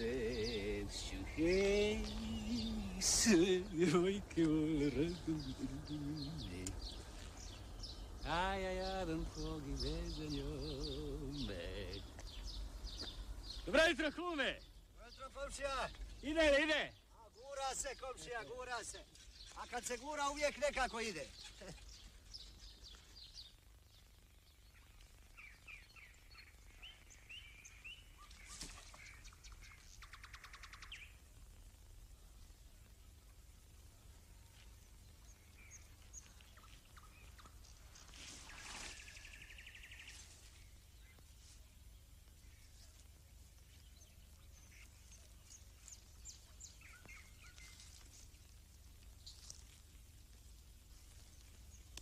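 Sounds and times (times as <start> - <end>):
low hum: 0.0 - 13.6
woodland birdsong: 0.0 - 52.0.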